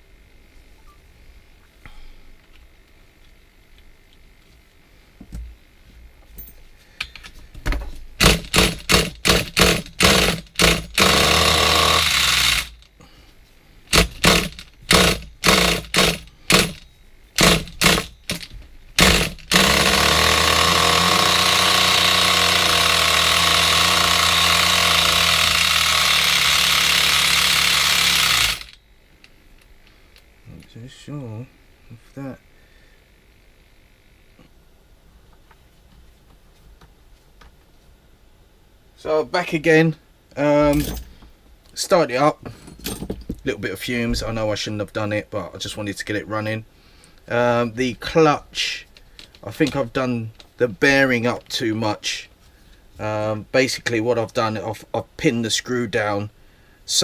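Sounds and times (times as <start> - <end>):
small nitro engine running: 8.2 - 12.8, 19.0 - 28.8
small nitro engine cranking: 8.2 - 13.0, 13.9 - 28.8.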